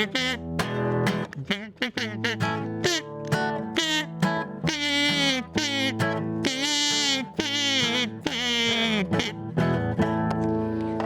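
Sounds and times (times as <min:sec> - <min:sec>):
acoustic guitar playing: 0:00.0 - 0:11.0.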